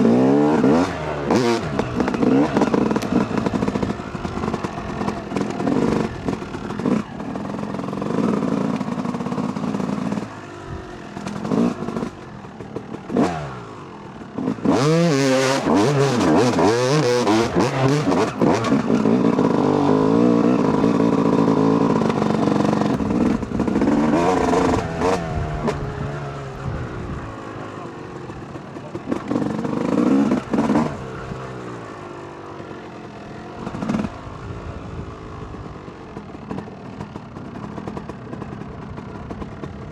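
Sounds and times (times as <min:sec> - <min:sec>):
dirt bike engine revving: 0:00.0 - 0:38.6.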